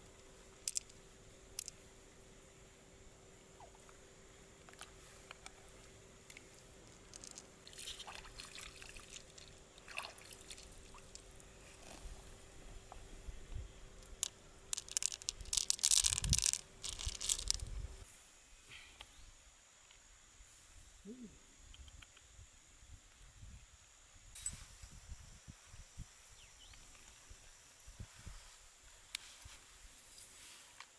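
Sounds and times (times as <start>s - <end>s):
clam shells clicking in water: 0.6s - 1.0s, 1.6s - 1.8s, 6.3s - 11.4s, 14.0s - 17.7s
water dripping: 7.0s - 11.5s.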